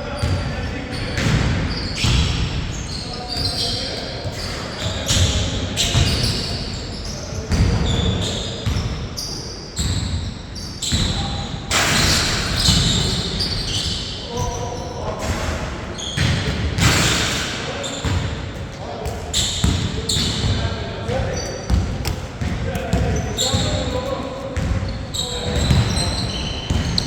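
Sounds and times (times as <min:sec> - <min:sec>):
sneaker squeaks: 0:00.1 - 0:27.0
basketball bouncing: 0:18.0 - 0:27.0.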